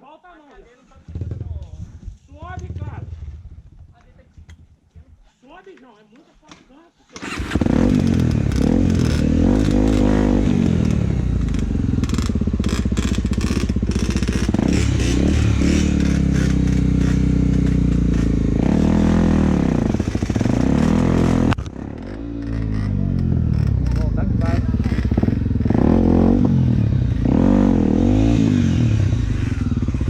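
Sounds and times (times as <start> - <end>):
motorcycle engine revving: 1.0 - 4.6, 7.2 - 30.0
stones clattering under tyres: 11.6 - 18.6.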